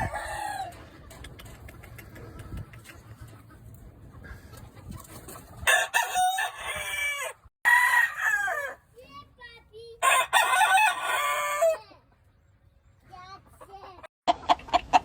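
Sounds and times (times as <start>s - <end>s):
roosters crowing: 0.0s - 0.9s, 5.6s - 8.8s, 10.0s - 11.8s.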